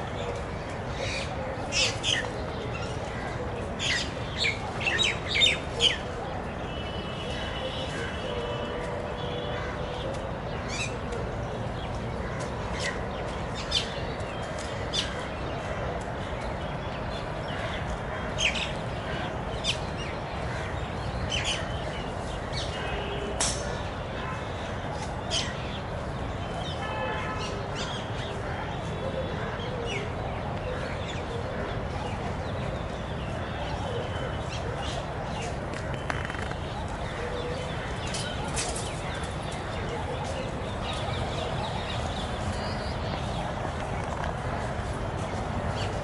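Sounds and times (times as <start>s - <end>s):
outdoor background noise: 0.0s - 46.0s
birds chirping: 29.9s - 46.0s.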